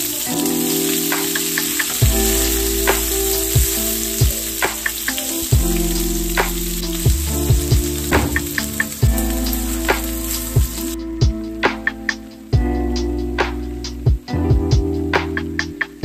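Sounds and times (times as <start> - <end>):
pepper strips sizzling in oil: 0.0 - 11.0
background music with chords: 0.0 - 16.0.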